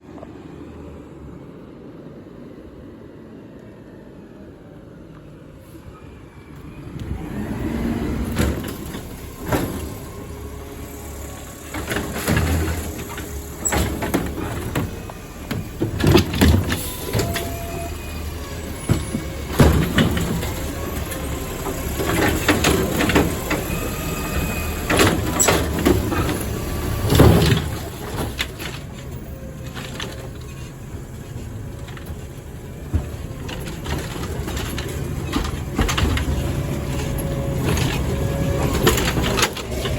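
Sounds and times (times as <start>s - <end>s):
garbage truck engine under load: 6.4s - 39.9s
loud clanks and bangs of pickup: 8.2s - 39.9s.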